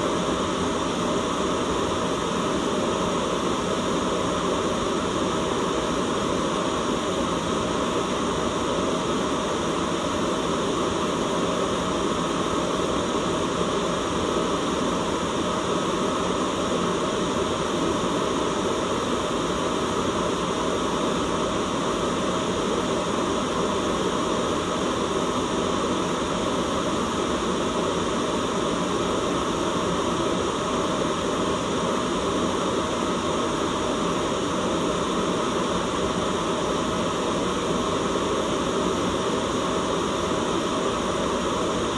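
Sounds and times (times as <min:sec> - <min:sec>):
white noise hiss: 0:00.0 - 0:41.9.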